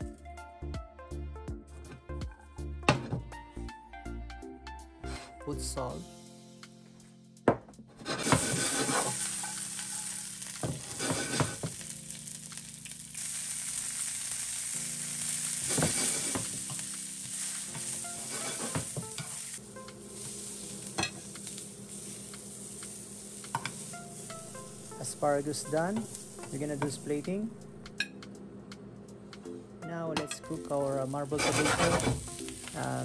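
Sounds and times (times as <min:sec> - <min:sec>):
metal tongs scraping a pan: 0:08.0 - 0:10.3, 0:10.9 - 0:11.6, 0:15.7 - 0:16.4, 0:17.7 - 0:19.4, 0:31.3 - 0:32.5
asparagus sizzling in oil: 0:08.1 - 0:27.4, 0:30.4 - 0:33.0.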